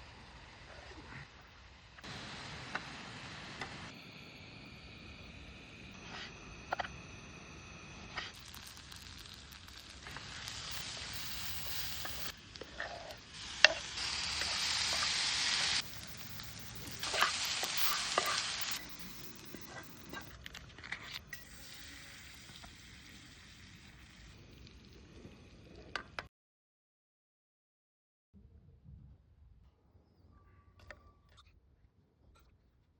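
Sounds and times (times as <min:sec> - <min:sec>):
food sizzling in a pan: 0:00.0 - 0:26.0
utensil clicks and scrapes: 0:08.1 - 0:22.7.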